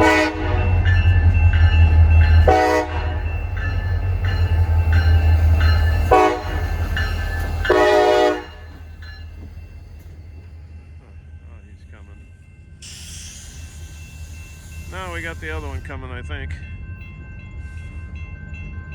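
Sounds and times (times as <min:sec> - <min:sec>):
locomotive air horn blasts: 0:00.0 - 0:00.9, 0:02.4 - 0:03.3, 0:06.0 - 0:06.8, 0:07.7 - 0:08.7
locomotive rumbling past: 0:00.0 - 0:18.7
crossing bell ringing: 0:00.0 - 0:18.9.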